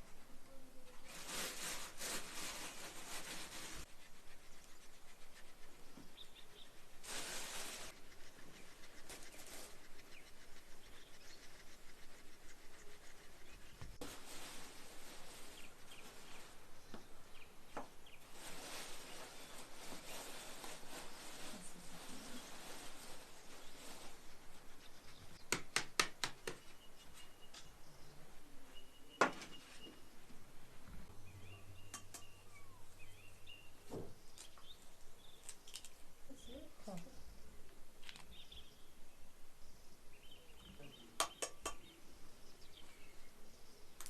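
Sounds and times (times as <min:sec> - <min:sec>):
rustling bursts: 0:01.0 - 0:16.7, 0:18.2 - 0:25.4
faint bird chirps: 0:26.6 - 0:30.3, 0:30.9 - 0:44.0.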